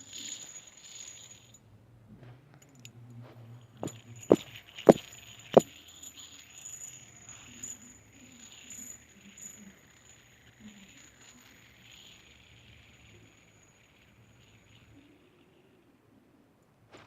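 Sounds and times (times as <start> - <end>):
fidget spinner whirring: 0.0 - 1.6, 2.6 - 16.2
fidget spinner clicks: 3.9 - 15.9.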